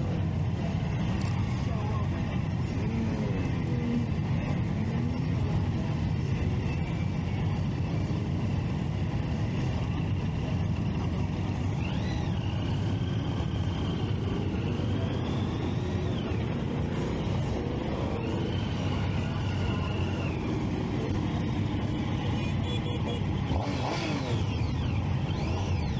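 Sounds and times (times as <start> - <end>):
motorcycle engine rumble: 0.0 - 25.9.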